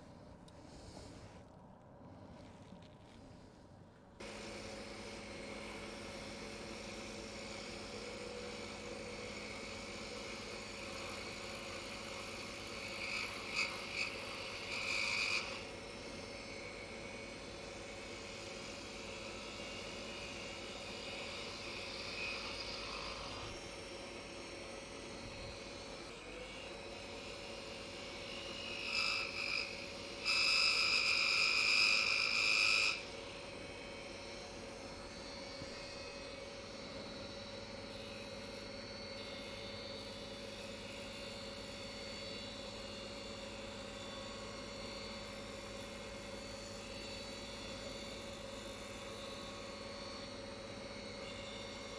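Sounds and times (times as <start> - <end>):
wood lathe motor hum: 4.2 - 51.9.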